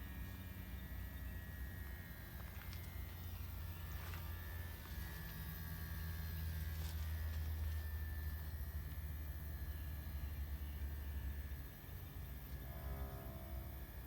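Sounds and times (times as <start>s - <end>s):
heat pump unit humming: 0.0s - 14.0s.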